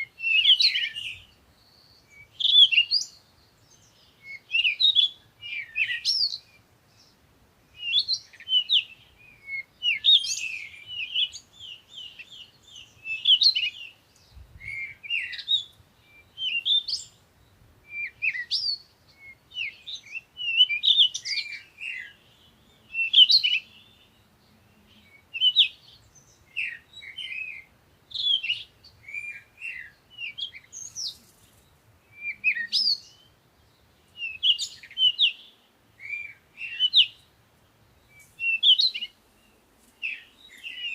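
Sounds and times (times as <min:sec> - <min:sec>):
songbirds chirping and whistling: 0:00.0 - 0:40.9.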